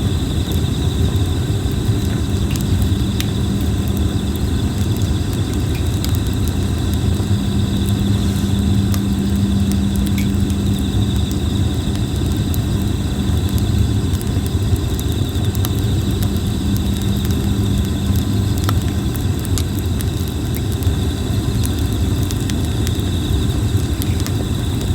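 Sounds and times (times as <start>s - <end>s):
insects trilling: 0.0s - 24.9s
wood crackling in a campfire: 0.0s - 24.9s.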